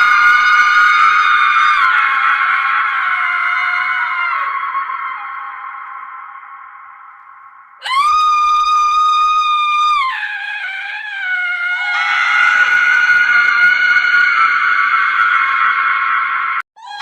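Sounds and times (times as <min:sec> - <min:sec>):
woman screaming: 0:07.8 - 0:15.5, 0:16.8 - 0:17.0.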